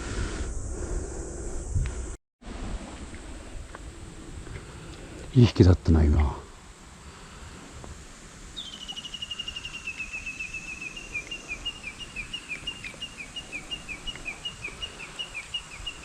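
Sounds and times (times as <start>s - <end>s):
bird chirping: 8.6s - 16.0s.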